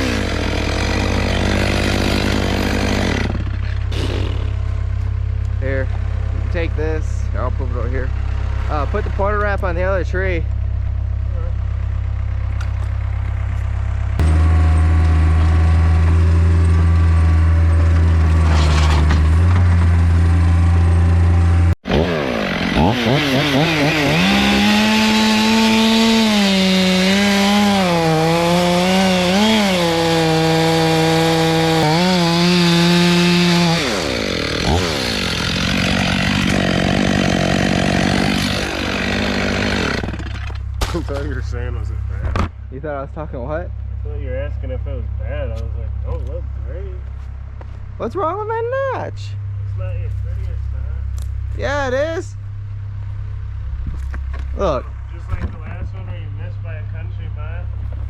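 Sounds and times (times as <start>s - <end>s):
chainsaw cutting wood: 0.0s - 4.7s, 14.2s - 41.1s
low steady engine drone: 0.0s - 21.8s, 40.0s - 58.0s.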